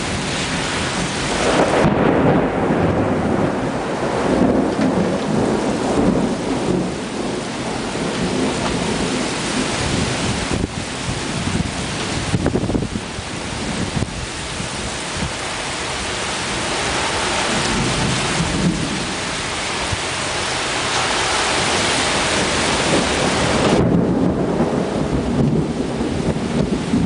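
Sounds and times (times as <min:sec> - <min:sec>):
heavy rain hissing: 0:00.0 - 0:27.0
thunder rumbling: 0:00.0 - 0:27.0.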